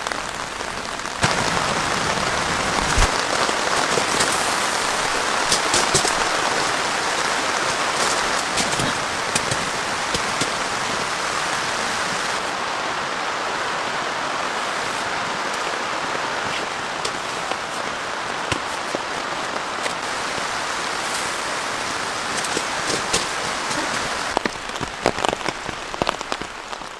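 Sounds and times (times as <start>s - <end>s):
heavy rain hissing: 0.0s - 26.9s
sharp raindrop taps: 1.2s - 12.4s, 21.1s - 26.9s.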